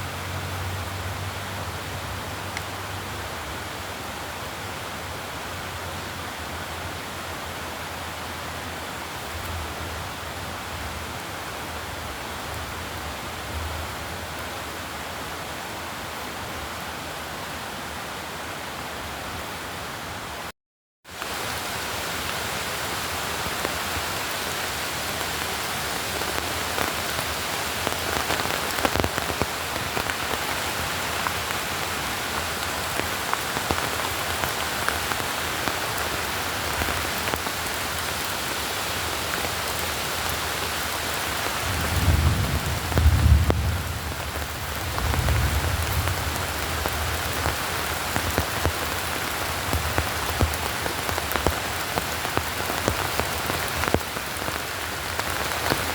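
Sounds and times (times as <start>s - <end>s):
steady rain falling: 0.0s - 20.5s, 21.1s - 55.9s
raindrops ticking: 25.1s - 55.9s.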